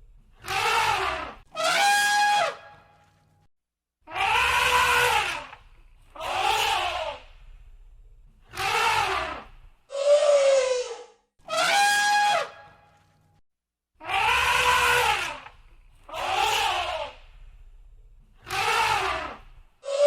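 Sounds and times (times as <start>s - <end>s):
elephants trumpeting: 0.4s - 2.8s, 4.2s - 5.5s, 6.2s - 7.3s, 8.5s - 12.8s, 14.0s - 15.5s, 16.1s - 17.3s, 18.4s - 20.0s.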